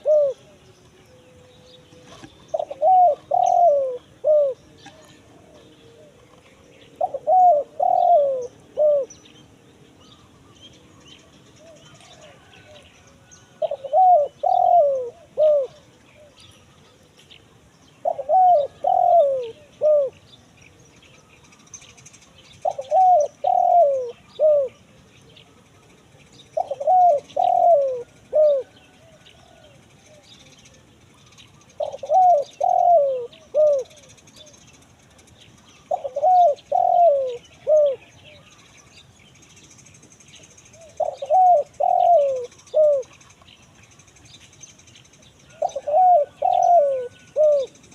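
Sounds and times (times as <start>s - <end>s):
dove cooing: 0.0s - 17.2s, 17.9s - 20.2s, 22.6s - 25.6s, 26.5s - 30.3s, 31.6s - 34.6s, 35.8s - 38.5s, 40.7s - 43.2s, 45.5s - 47.9s.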